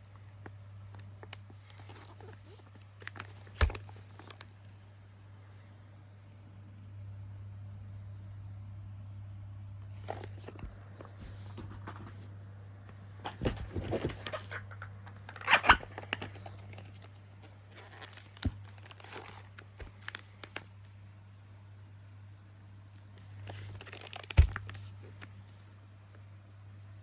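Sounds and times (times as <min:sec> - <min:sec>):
packaging crinkling and rustling: 0:00.9 - 0:04.8, 0:09.9 - 0:12.3, 0:13.2 - 0:20.7, 0:23.2 - 0:25.7.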